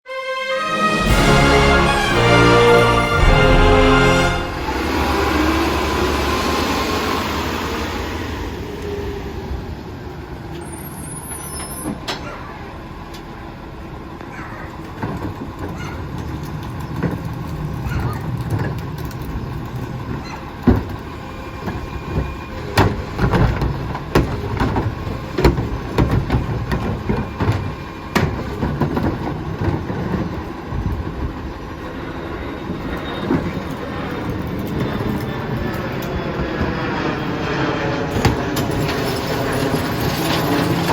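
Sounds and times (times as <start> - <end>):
garbage truck rumbling: 0.1 - 36.8, 38.0 - 40.9
metal clanks and bangs: 1.0 - 5.6.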